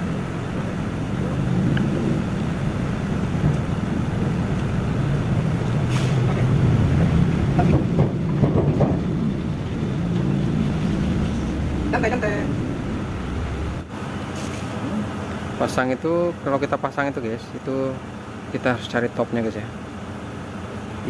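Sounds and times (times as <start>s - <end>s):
low mechanical rumble: 0.0s - 21.0s
higher wavering sounds: 8.9s - 13.9s.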